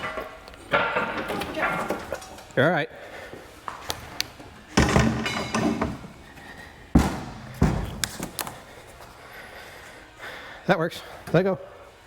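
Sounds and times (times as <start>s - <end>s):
heavy metal hood knocks: 7.0s - 8.0s.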